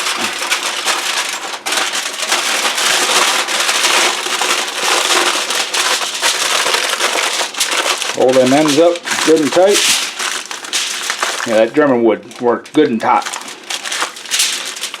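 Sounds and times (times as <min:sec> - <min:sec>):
aluminum foil crinkling: 0:00.0 - 0:15.0.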